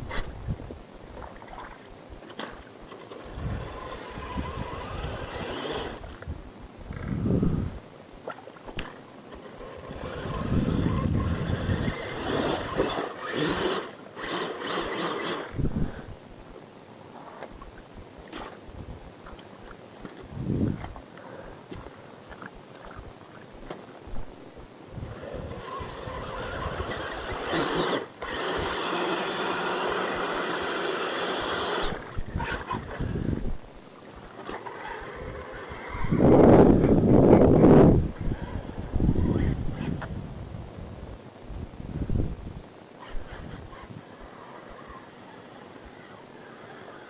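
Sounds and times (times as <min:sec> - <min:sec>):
truck motor revving with whine: 0:09.8 - 0:15.5, 0:25.0 - 0:32.7.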